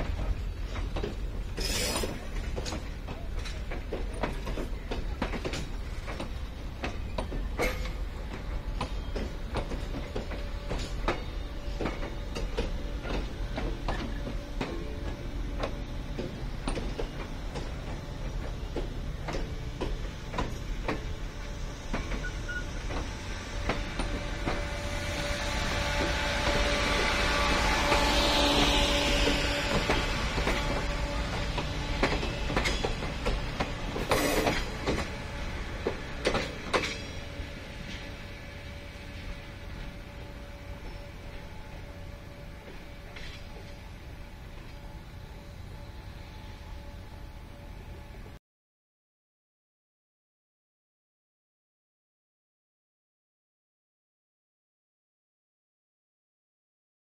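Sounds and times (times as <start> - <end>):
wheels clicking over rail joints: 0.0 - 24.7, 27.8 - 41.7
locomotive engine hum and hiss: 0.0 - 48.4
train low rumble: 0.0 - 48.4.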